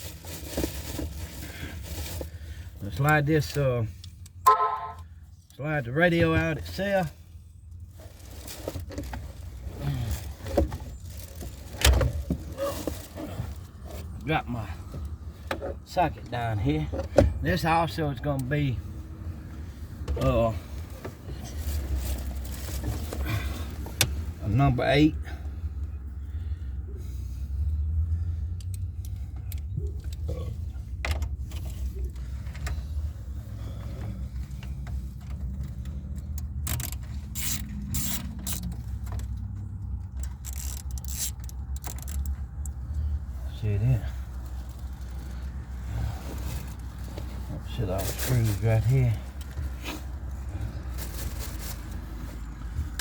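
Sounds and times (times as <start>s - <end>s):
clicks and knocks of tools: 34.7s - 42.8s
ratchet clicking on metal: 36.7s - 38.7s, 40.4s - 42.3s.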